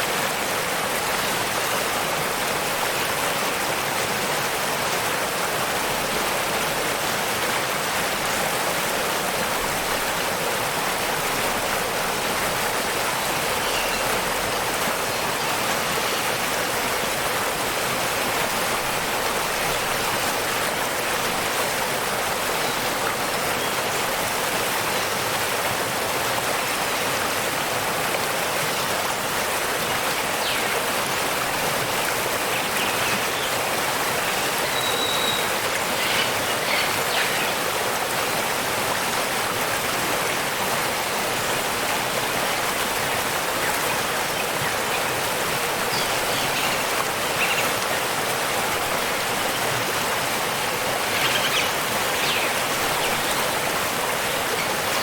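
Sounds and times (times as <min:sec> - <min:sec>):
waterfall rushing: 0:00.0 - 0:55.0
faint bird chirps: 0:34.6 - 0:37.4.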